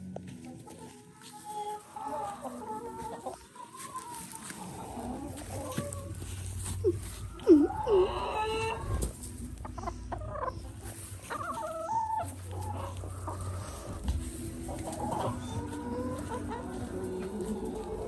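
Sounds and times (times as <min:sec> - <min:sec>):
chickens clucking and calling: 0:00.0 - 0:18.0.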